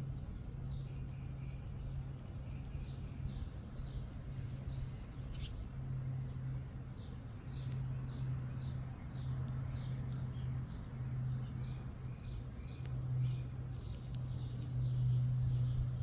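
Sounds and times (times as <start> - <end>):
low steady hum: 0.0 - 16.0
small bird chirping: 0.0 - 16.0
faint clicks: 13.8 - 14.7.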